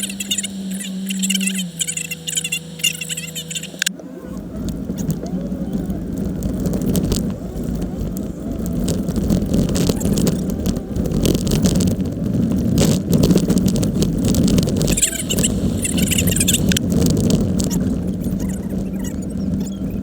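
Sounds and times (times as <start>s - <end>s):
jeep engine running: 0.0s - 20.0s
vehicle knocks and rattles: 4.1s - 20.0s.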